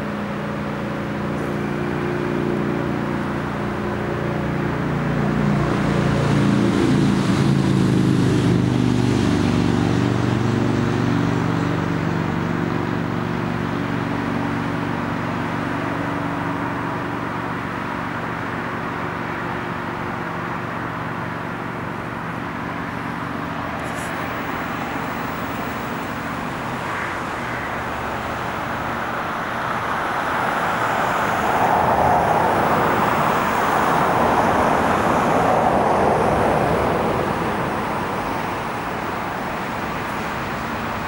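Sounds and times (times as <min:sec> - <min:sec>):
broad rushing noise: 0:00.0 - 0:41.0
diesel locomotive low hum: 0:00.0 - 0:41.0.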